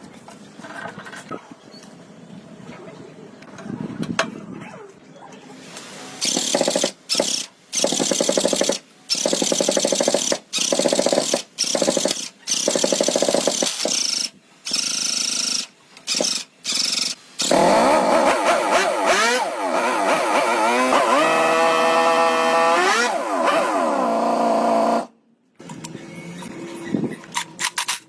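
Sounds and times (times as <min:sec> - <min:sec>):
power tool sanding buzz: 0:17.4 - 0:25.1.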